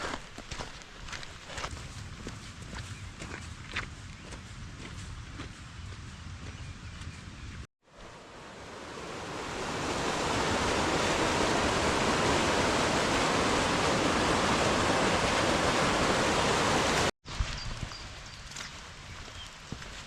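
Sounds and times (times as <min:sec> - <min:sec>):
rushing water: 0:07.9 - 0:20.0.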